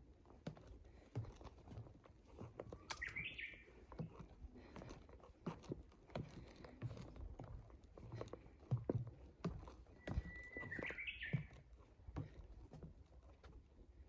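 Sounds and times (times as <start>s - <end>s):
footsteps on a trail: 0.0s - 13.9s
bird chirping: 3.0s - 3.6s, 10.2s - 11.5s.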